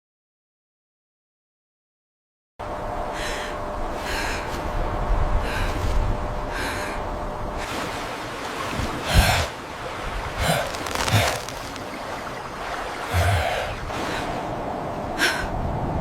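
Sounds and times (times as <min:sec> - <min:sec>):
breathy gasps or snorts: 0:10.4 - 0:11.9, 0:13.1 - 0:14.4.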